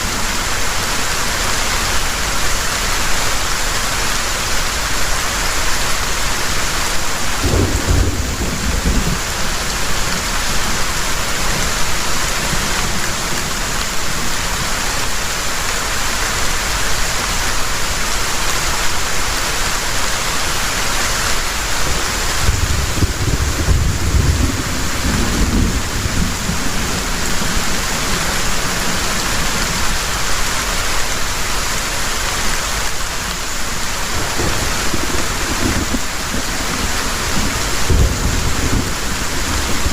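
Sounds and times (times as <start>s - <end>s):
heavy rain pouring: 0.0s - 39.9s
low thunder rumbling: 7.4s - 11.7s, 21.8s - 30.0s, 34.1s - 39.9s.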